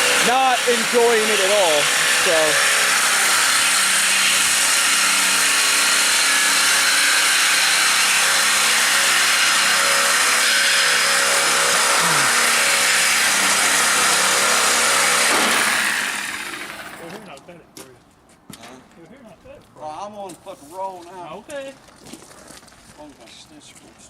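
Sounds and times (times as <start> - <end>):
power cutting tool cutting steel: 0.0 - 17.2.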